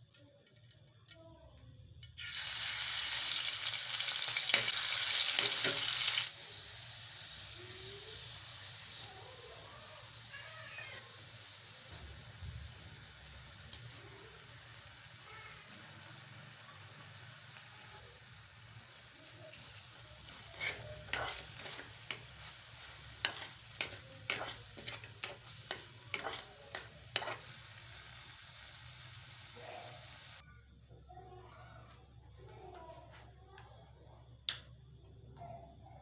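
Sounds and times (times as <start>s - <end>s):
food sizzling in oil: 2.0s - 30.4s
utensil scraping and knocking pan: 23.2s - 27.4s.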